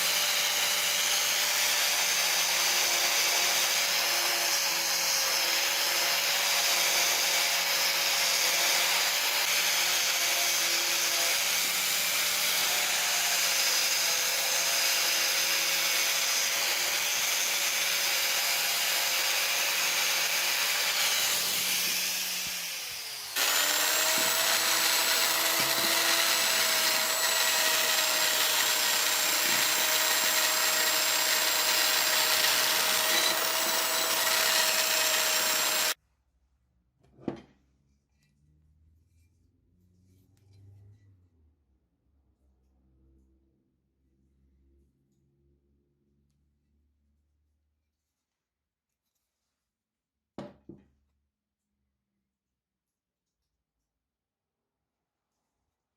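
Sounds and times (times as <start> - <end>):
power tool motor whining: 6.5 - 36.0.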